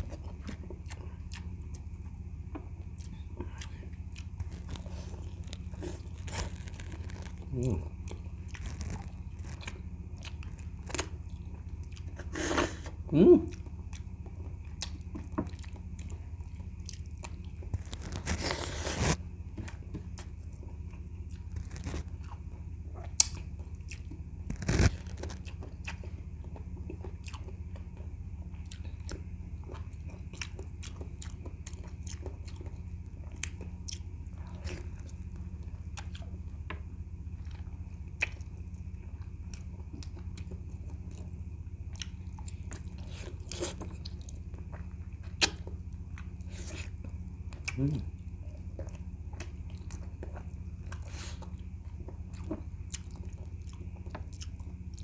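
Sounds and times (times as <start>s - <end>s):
steady low hum: 0.0s - 55.0s
wet chewing: 13.5s - 19.2s, 23.0s - 36.4s, 37.3s - 55.0s.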